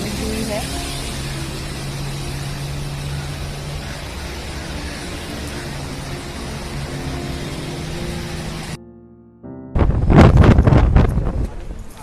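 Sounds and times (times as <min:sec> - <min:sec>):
steady hiss: 0:00.0 - 0:08.8
vehicle engine humming: 0:00.0 - 0:08.8.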